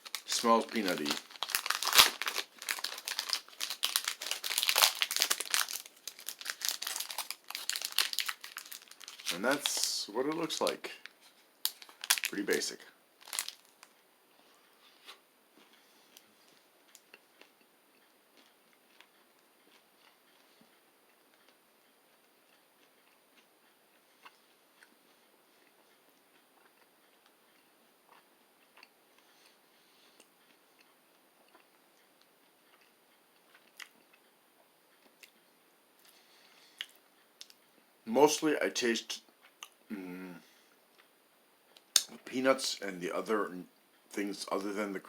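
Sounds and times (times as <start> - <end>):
person crunching nut bar: 0.0 - 10.7, 11.7 - 13.9
faint chewing crunches: 0.0 - 35.4.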